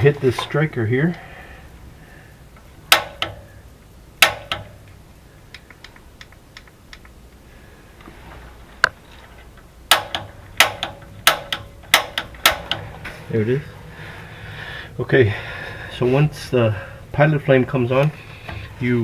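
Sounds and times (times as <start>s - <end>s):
piezo igniter clicking: 2.6s - 7.4s, 9.6s - 13.2s.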